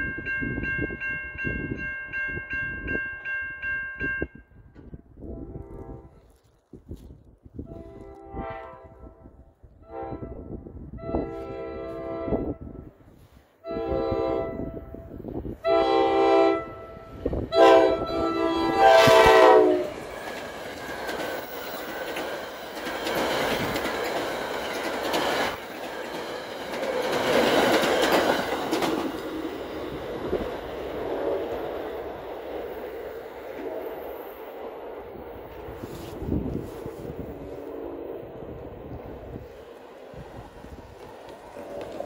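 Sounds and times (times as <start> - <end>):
train horn blasts: 5.2 - 6.3, 7.6 - 20.0
train coaches clattering on rails: 17.7 - 35.8.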